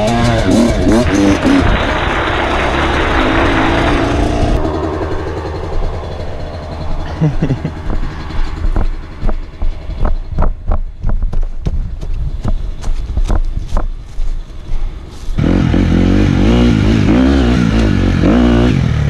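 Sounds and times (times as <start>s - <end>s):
sharp knocks and clatter: 0.0s - 14.4s
off-road vehicle engine running: 0.0s - 19.0s.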